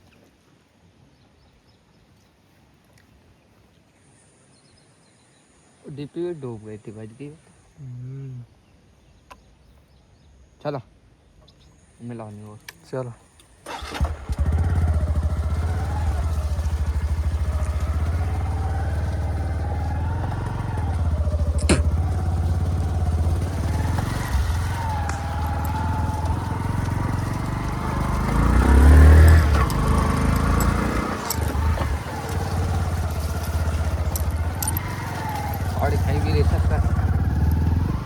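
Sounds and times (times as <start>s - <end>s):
vehicle engine running: 13.7s - 38.0s.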